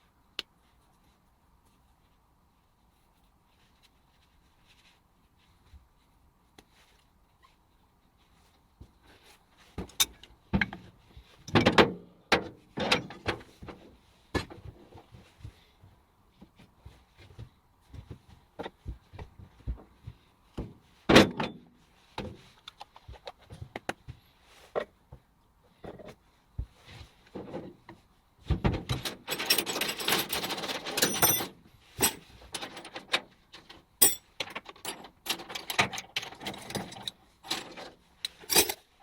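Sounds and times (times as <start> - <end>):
irregular knocks and thuds: 9.7 - 21.6, 25.1 - 29.1.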